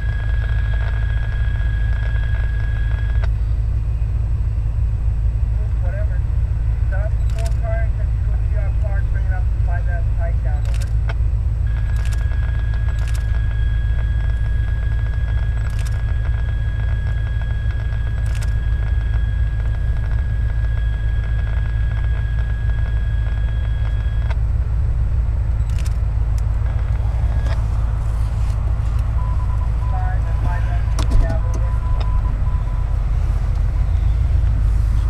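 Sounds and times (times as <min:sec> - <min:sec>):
sharp clicks: 0:07.2 - 0:07.7, 0:10.6 - 0:24.4, 0:25.6 - 0:27.6
train rumbling over bridge: 0:24.5 - 0:35.0.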